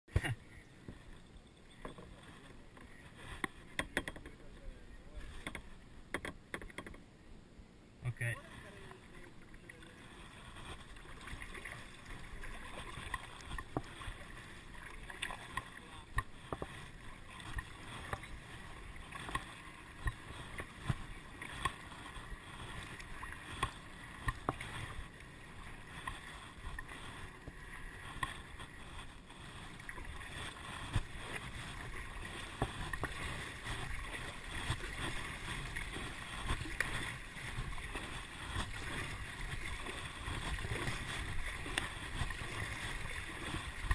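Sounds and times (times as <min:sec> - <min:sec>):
water splashing around kayak: 0:00.1 - 0:07.1, 0:08.1 - 0:43.9
sharp knocks and taps: 0:03.4 - 0:04.4, 0:05.4 - 0:07.0.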